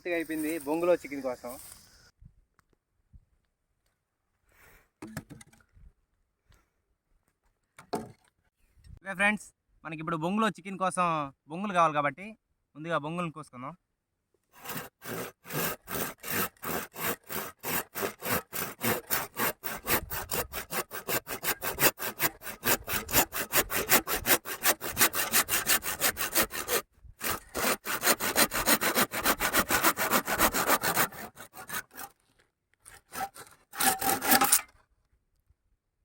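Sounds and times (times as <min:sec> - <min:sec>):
hand saw cutting bamboo: 0:14.5 - 0:32.2, 0:32.8 - 0:34.8.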